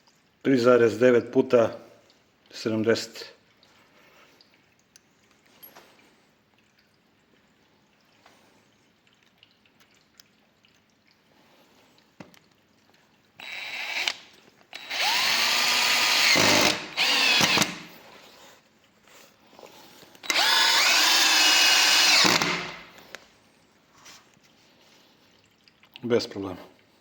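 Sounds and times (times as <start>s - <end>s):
cordless drill motor whining: 13.4s - 17.9s, 20.2s - 23.0s.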